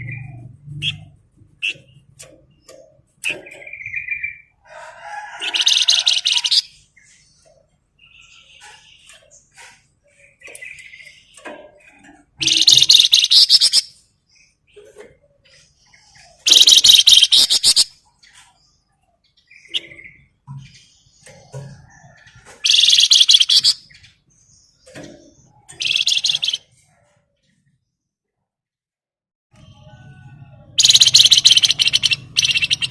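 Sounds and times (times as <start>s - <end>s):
soft bird chirps: 5.5s - 27.8s, 30.7s - 32.9s.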